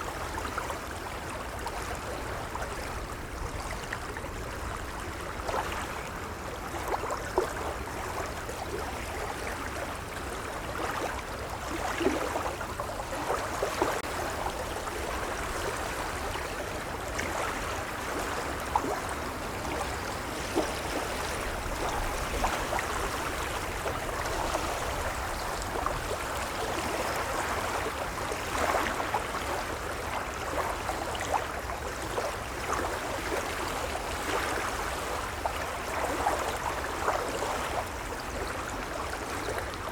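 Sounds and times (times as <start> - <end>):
gentle waves lapping: 0.0 - 39.9.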